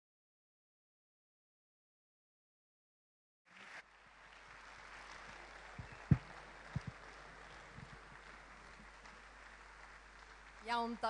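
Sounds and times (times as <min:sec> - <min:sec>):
faint background hiss: 0:03.5 - 0:11.0.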